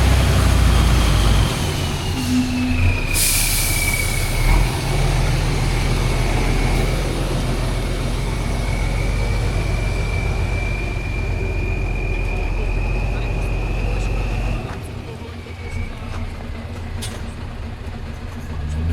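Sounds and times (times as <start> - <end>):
diesel truck engine running: 0.0 - 18.9
hiss: 3.0 - 4.5.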